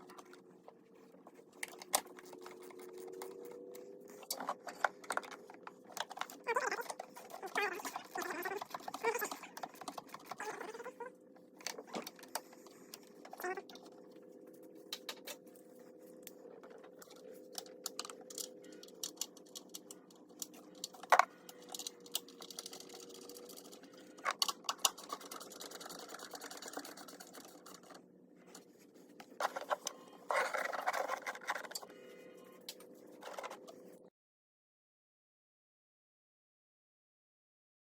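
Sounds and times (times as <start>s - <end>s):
steady hum: 0.0s - 34.1s.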